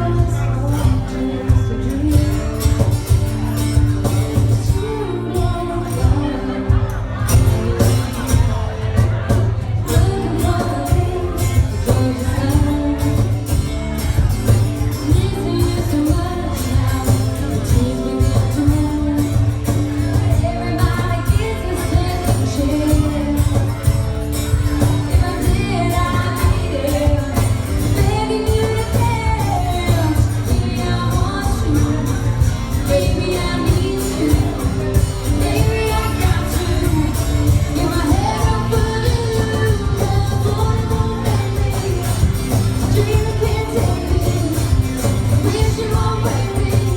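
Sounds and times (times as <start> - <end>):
country band accompaniment: 0.0 - 46.9
woman singing: 0.0 - 46.9.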